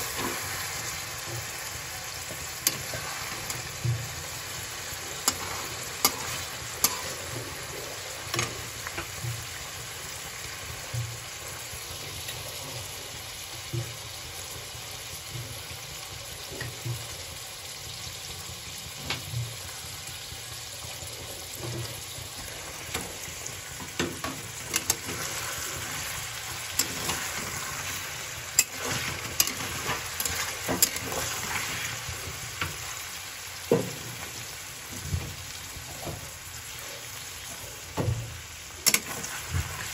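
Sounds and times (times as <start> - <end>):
metal spatula scraping and tapping pan: 0.0 - 9.5, 21.6 - 32.9, 38.8 - 39.9
cheese cubes sizzling in oil: 0.0 - 39.9.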